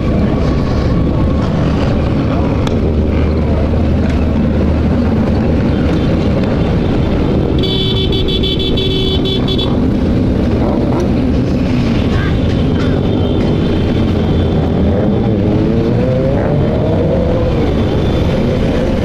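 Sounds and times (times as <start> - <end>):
wind rumbling: 0.0 - 19.0
vehicle horn pulses: 7.6 - 9.8.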